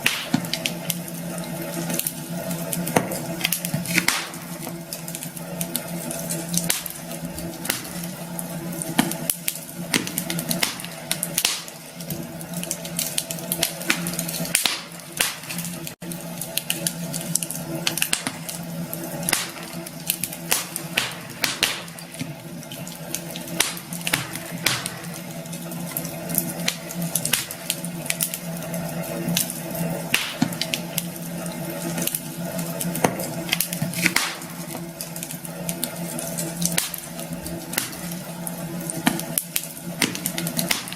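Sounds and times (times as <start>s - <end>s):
fire hiss: 0.0s - 15.9s, 33.0s - 40.9s
wood crackling and popping: 0.0s - 40.9s.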